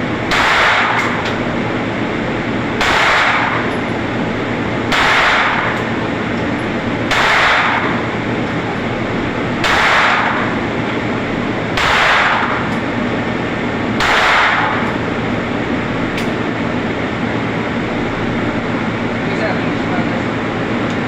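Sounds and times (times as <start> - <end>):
steady background noise: 0.0 - 21.0
gunshots with ringing tail: 0.2 - 1.2, 2.7 - 3.9, 4.8 - 6.0, 7.0 - 8.2, 9.6 - 10.6, 11.7 - 12.7, 13.9 - 15.1
sharp gunshot crack: 0.3 - 1.2, 2.8 - 3.7, 4.9 - 5.8, 7.1 - 8.0, 9.6 - 10.5, 11.8 - 12.6, 14.0 - 14.8.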